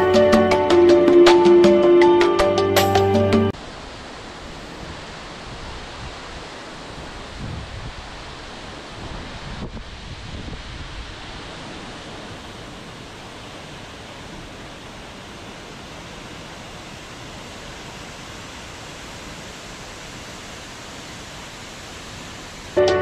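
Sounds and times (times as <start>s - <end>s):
waterfall rushing: 0.0s - 23.0s
wind buffeting microphone: 3.8s - 15.8s.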